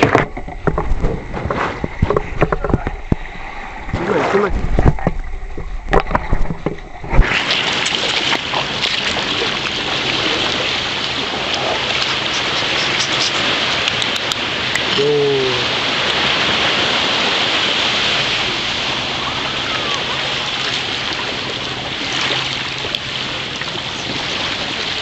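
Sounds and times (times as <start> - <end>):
rushing water hiss: 5.7 - 25.0.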